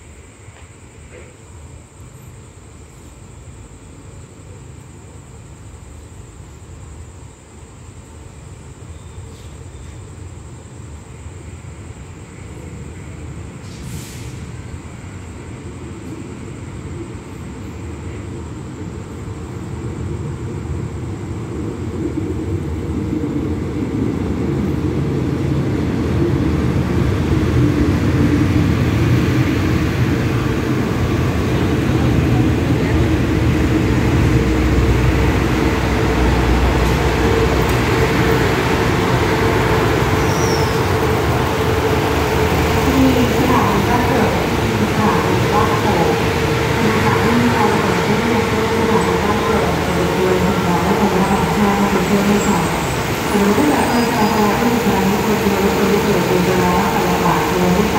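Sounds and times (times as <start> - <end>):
train wheels rolling: 24.6 - 57.9
diesel locomotive rumble: 25.4 - 57.9.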